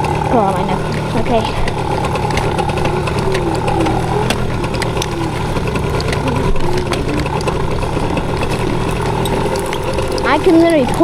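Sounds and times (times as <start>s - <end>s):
dirt bike engine running: 0.0s - 11.0s
scattered clicks and knocks: 0.0s - 11.0s.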